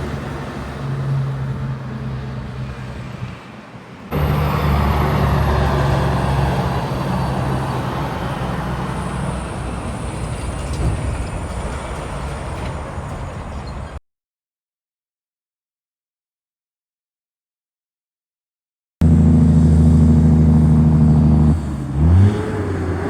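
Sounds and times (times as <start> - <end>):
heavy truck passing by: 0.0 - 14.0, 19.0 - 23.0.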